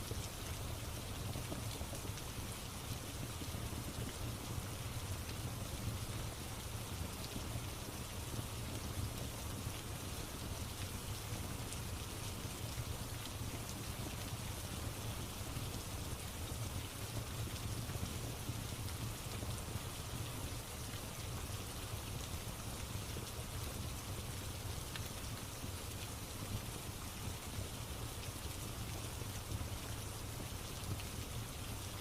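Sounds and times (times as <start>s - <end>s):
rain falling: 0.0s - 32.0s.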